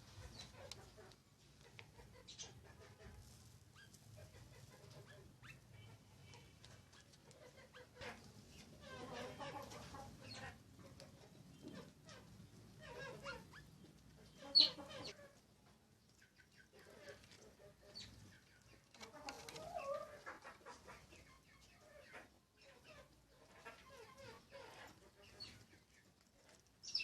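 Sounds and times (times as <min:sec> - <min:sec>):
birds chirping: 0:11.2 - 0:15.2, 0:26.8 - 0:27.0.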